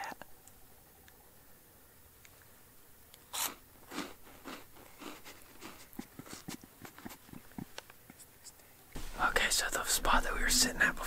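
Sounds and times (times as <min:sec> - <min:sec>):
crunchy snack chewing: 0:03.1 - 0:07.7.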